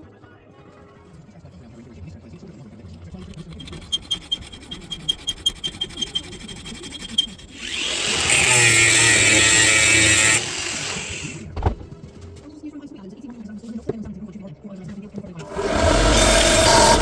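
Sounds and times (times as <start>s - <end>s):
power tool whirring: 3.5s - 11.4s, 15.4s - 17.0s.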